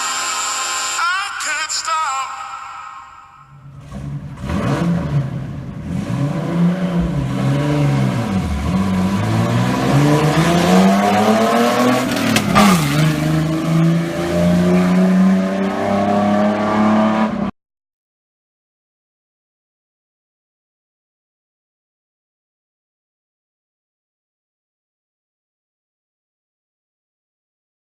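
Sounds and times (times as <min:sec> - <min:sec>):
truck engine revving: 0:03.5 - 0:17.5.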